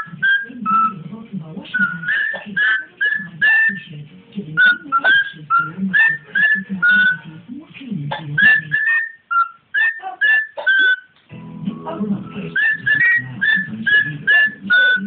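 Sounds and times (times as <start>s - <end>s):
cockatiel whistling: 0.0s - 1.0s, 1.7s - 3.9s, 4.6s - 7.3s, 8.4s - 11.1s, 12.3s - 15.0s.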